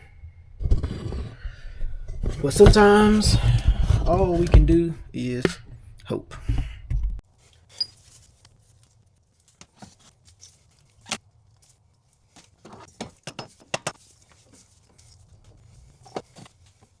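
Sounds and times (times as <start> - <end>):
tools and car parts clicking: 12.4 - 14.1.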